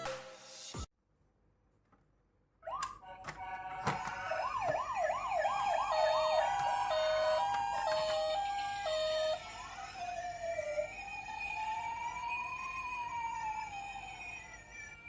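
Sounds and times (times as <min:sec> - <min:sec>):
toy ambulance sirens: 0:02.6 - 0:15.0.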